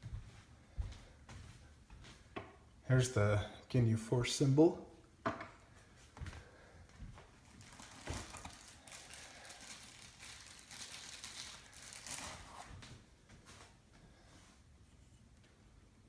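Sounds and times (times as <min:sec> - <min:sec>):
packaging rustling and crinkling: 0:07.0 - 0:13.7.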